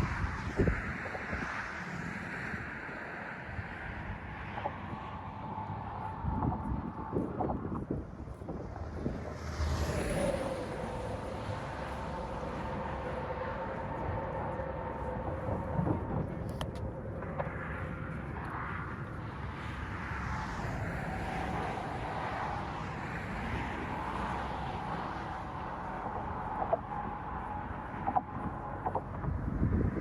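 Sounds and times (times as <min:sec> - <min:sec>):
steady rumbling noise: 0:00.0 - 0:30.0.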